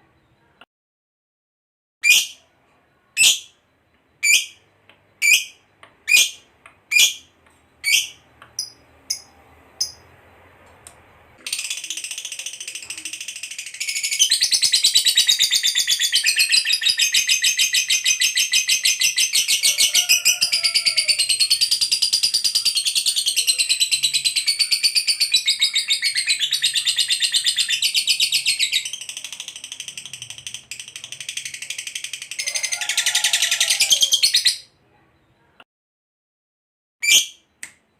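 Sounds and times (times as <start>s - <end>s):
lovebird chattering trill: 4.2s - 4.6s, 5.2s - 10.1s.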